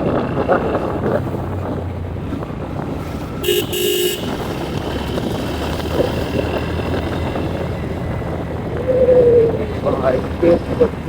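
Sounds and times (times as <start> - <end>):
motorcycle engine rumble: 0.0 - 11.0
wind on microphone: 0.0 - 11.0
vehicle horn honking: 3.4 - 5.2.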